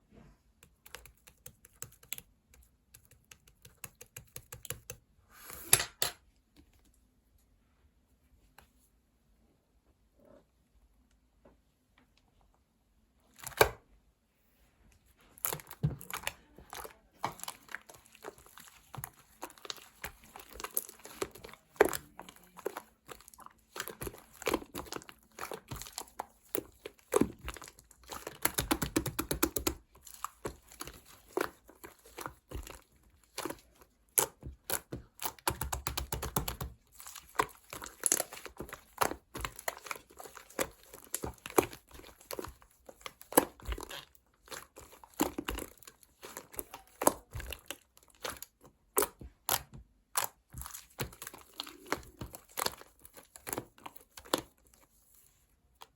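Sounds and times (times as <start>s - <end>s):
wet slime squelch: 13.1s - 55.9s
slime popping and crackling: 15.4s - 54.5s.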